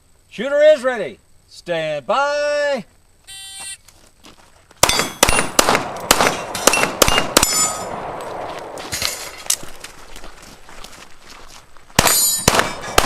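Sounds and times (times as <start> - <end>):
steel target ringing: 4.8 - 5.6, 6.3 - 8.0, 12.0 - 13.0
pistol shots: 4.8 - 9.2, 12.0 - 13.0.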